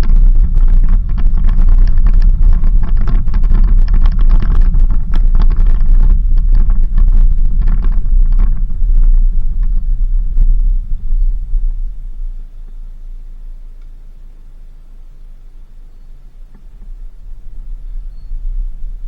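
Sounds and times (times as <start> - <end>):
rattles and knocks: 0.0 - 12.4
vehicle rumbling on dirt road: 0.0 - 19.0.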